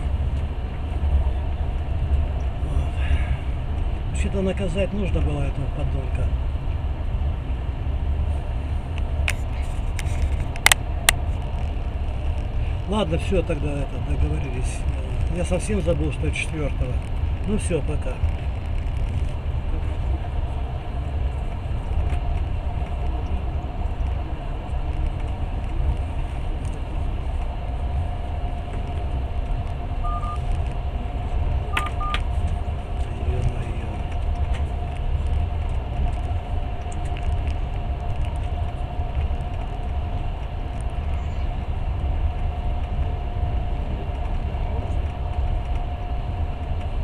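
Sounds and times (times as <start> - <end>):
faint constant whine: 0.0 - 47.0
train carriage rumbling: 0.0 - 47.0
mobile phone beeps: 30.0 - 30.4, 31.7 - 32.2.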